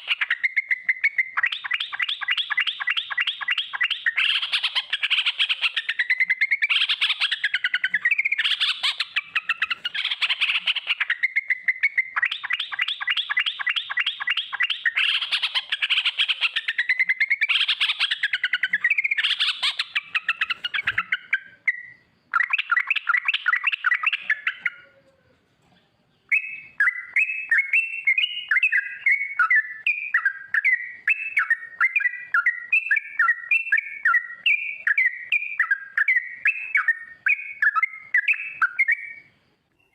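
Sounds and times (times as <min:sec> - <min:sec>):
bird singing rolling chatters: 0:00.0 - 0:39.9.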